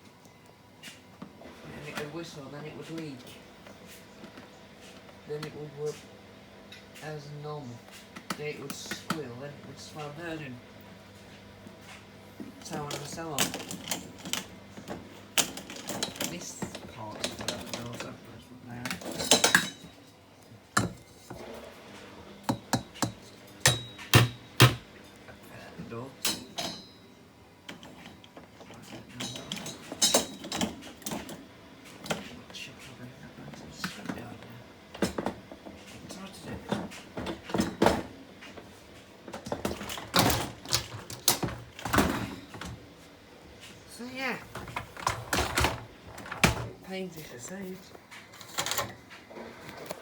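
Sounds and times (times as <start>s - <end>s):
dishwasher parts knocking and clinking: 18.9s - 20.0s, 22.5s - 24.8s, 29.0s - 31.3s.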